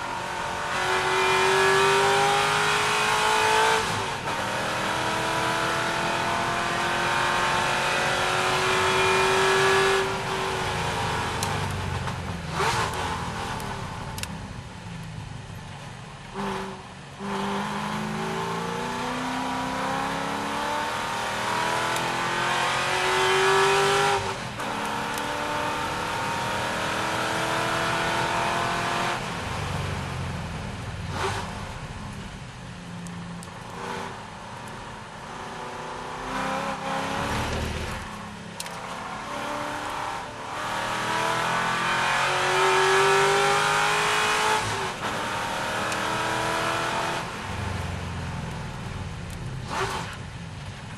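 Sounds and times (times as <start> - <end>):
sports car engine revving hard: 0.0 - 11.5, 16.4 - 29.2, 39.2 - 47.3.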